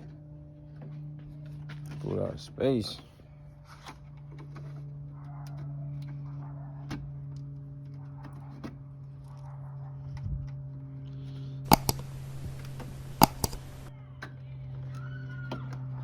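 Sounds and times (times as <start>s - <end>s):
steady low hum: 10.2s - 14.0s
car parts clicking and knocking: 11.7s - 13.9s
sharp loud clicks: 11.7s - 13.9s.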